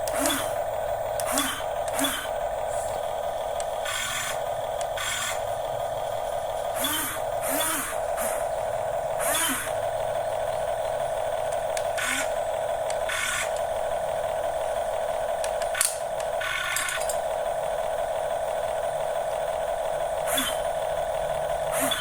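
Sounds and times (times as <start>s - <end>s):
electric motor whine: 0.0s - 22.0s.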